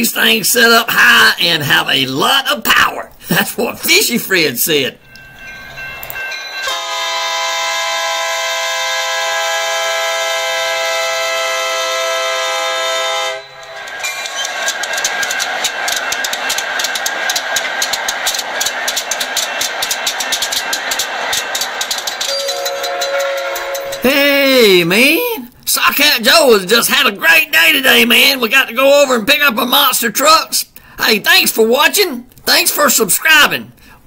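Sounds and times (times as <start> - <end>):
locomotive horn chord: 6.7 - 13.7, 22.3 - 24.0.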